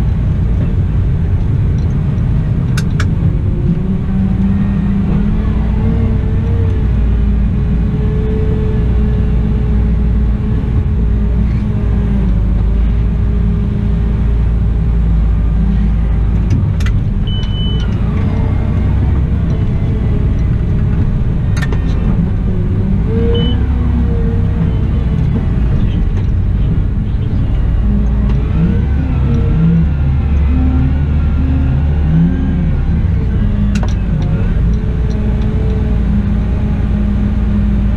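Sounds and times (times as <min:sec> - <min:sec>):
wheel loader engine rumbling: 0:00.0 - 0:37.9
short high beep: 0:17.3 - 0:17.9.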